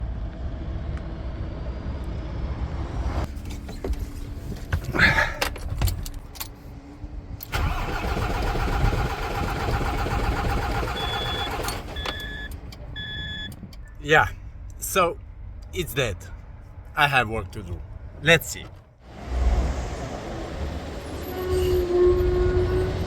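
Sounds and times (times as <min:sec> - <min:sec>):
diesel engine cranking: 0:07.4 - 0:14.0.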